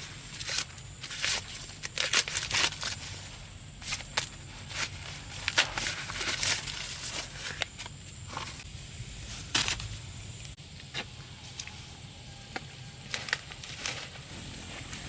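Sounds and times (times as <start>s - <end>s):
low rumble: 8.2s - 11.4s
crackles and snaps: 12.5s - 15.0s.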